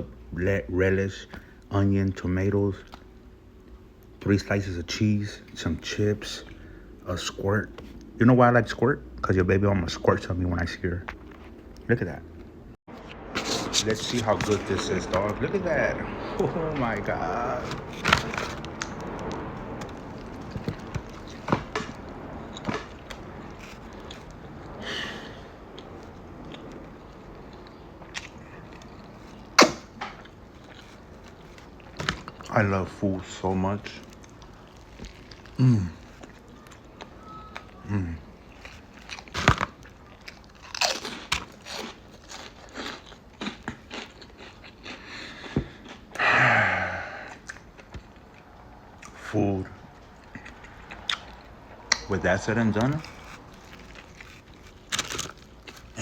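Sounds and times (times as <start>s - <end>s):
person chewing burger: 17.5s - 32.5s, 34.0s - 49.2s, 49.9s - 52.1s, 52.7s - 56.0s
breathy vocal sound: 46.2s - 47.4s.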